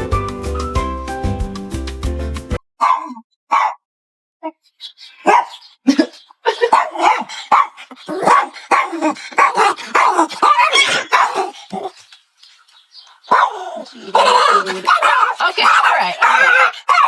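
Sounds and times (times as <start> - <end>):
dog barking: 2.8 - 3.8, 5.2 - 5.7, 6.5 - 11.6, 13.3 - 17.0.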